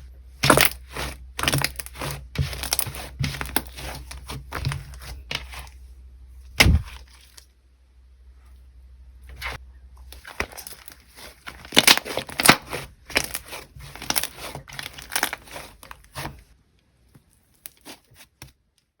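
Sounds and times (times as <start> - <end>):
slime squelching by hand: 0.3 - 5.8, 6.5 - 7.5, 9.3 - 16.6, 17.2 - 18.6.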